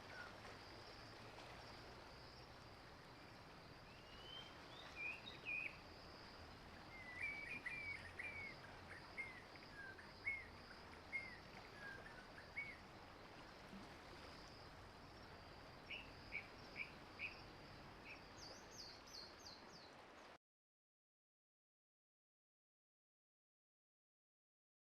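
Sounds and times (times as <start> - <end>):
faint high hiss: 0.0 - 20.3.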